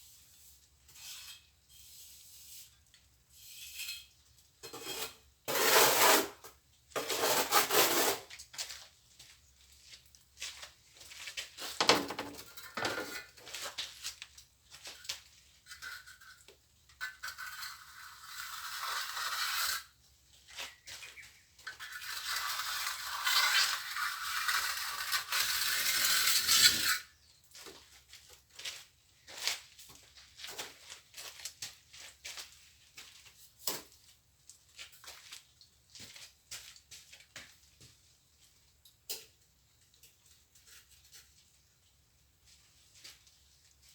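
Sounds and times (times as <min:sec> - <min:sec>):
trowel scraping mortar: 0:00.0 - 0:08.3, 0:15.7 - 0:20.0, 0:21.7 - 0:27.1.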